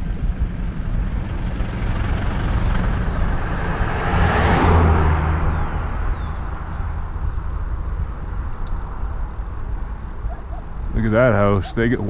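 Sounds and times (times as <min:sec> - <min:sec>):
wind rumble on microphone: 0:00.0 - 0:12.0
vehicle passing close by: 0:01.0 - 0:12.0.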